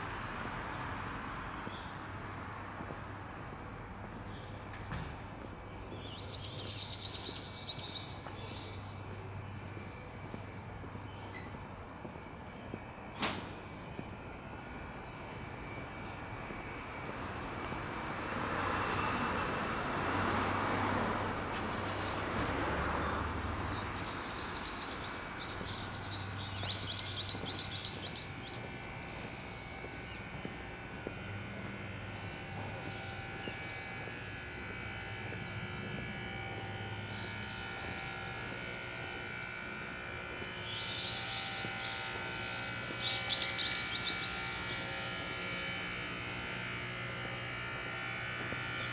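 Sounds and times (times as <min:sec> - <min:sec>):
distant engine: 0:00.0 - 0:48.9
birds chirping: 0:05.7 - 0:11.6, 0:23.4 - 0:47.2.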